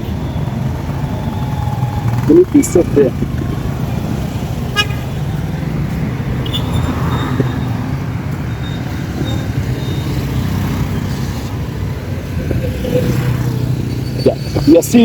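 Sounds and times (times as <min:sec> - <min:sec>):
street traffic rumble: 0:00.0 - 0:15.0
thin high squeal: 0:13.8 - 0:15.0.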